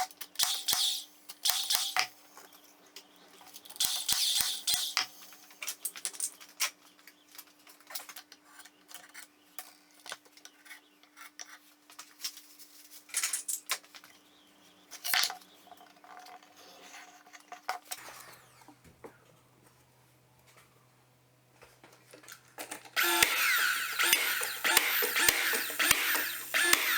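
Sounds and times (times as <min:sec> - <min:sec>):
tools clicking and clattering: 0:21.8 - 0:26.9.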